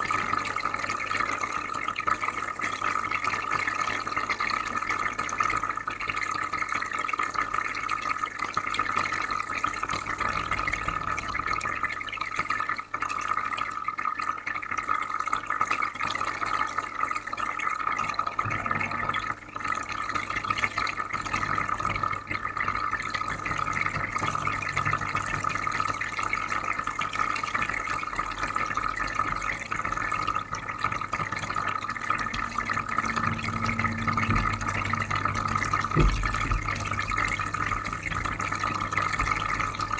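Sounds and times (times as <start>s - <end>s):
water bubbling and trickling: 17.6s - 39.9s
low constant hum: 18.0s - 39.9s.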